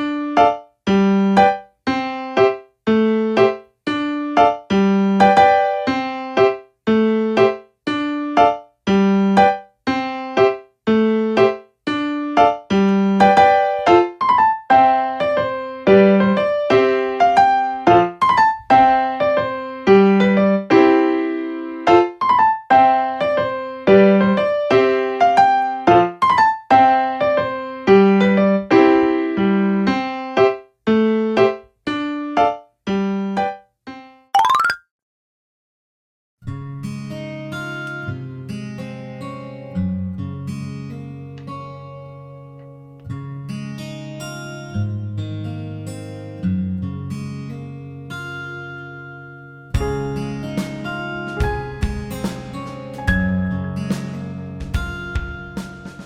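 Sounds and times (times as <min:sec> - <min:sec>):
piano melody: 0:00.0 - 0:33.7, 0:34.4 - 0:34.8, 0:49.8 - 0:56.0.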